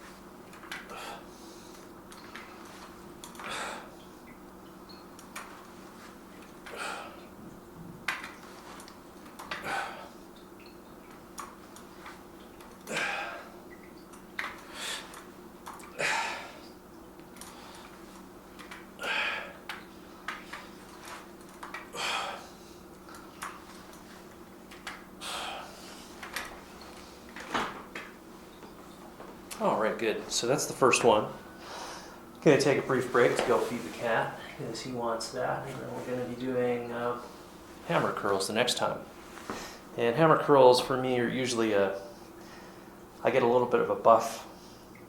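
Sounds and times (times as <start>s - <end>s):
steady low hum: 0.0s - 45.0s
man breathing hard: 0.9s - 1.8s, 3.4s - 4.0s, 14.7s - 15.2s, 19.0s - 19.6s, 21.9s - 22.9s, 25.2s - 26.2s, 31.5s - 32.2s.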